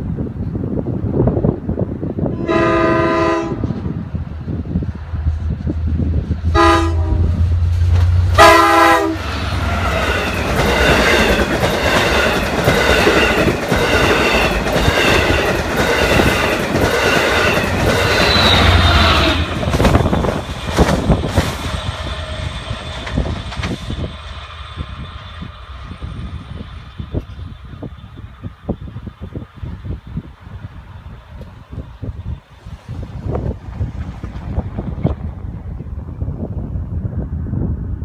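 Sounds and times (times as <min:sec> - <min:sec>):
train air horn blasts: 0:02.3 - 0:03.9, 0:06.5 - 0:09.4, 0:18.0 - 0:19.6
train wheels clattering over rails: 0:09.3 - 0:24.4.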